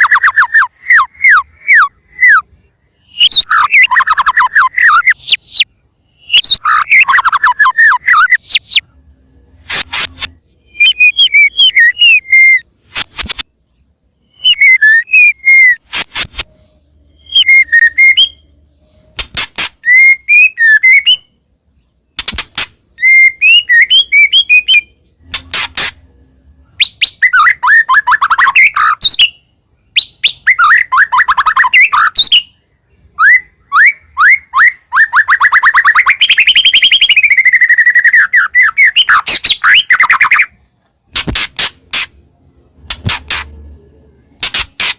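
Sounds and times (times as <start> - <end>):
songbird singing whistled notes: 0.0 - 40.7
sharp clicks: 9.6 - 11.2, 12.9 - 13.5, 15.8 - 16.6, 19.1 - 20.0, 22.2 - 22.8, 25.2 - 26.0, 40.3 - 42.2, 42.8 - 43.6, 44.4 - 44.9.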